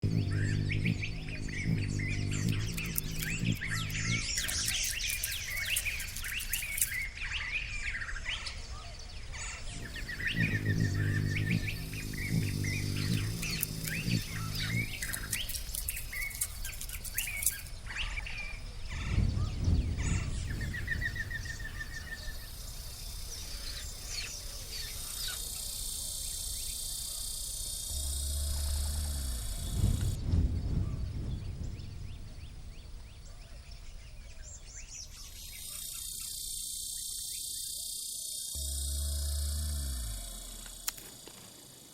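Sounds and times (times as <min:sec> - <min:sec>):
wild birds chirping and singing: 0:00.0 - 0:41.9
low pitched sound: 0:09.7 - 0:16.6, 0:27.9 - 0:32.1, 0:38.6 - 0:40.9
high-pitched buzz: 0:09.8 - 0:17.7, 0:27.9 - 0:30.2, 0:38.6 - 0:41.4.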